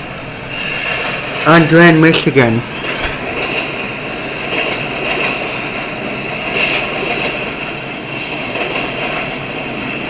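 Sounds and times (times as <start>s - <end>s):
thin high whine: 0.0s - 4.6s
train wheels rolling on track: 0.0s - 10.0s.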